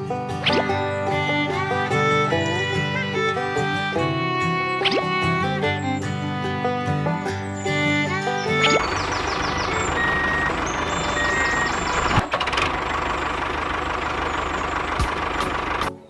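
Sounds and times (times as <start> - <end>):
background music: 0.0 - 11.9.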